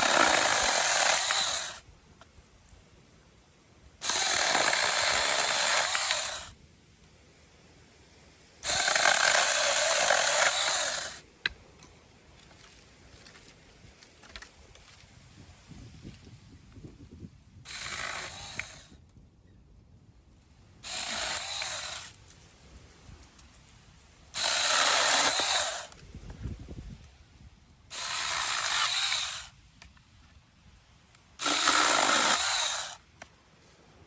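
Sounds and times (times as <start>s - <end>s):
cordless chainsaw cutting sticks: 0.0s - 1.8s, 4.0s - 6.6s, 8.6s - 11.2s, 17.7s - 19.0s, 20.8s - 22.2s, 24.4s - 26.0s, 27.9s - 29.6s, 31.4s - 33.3s.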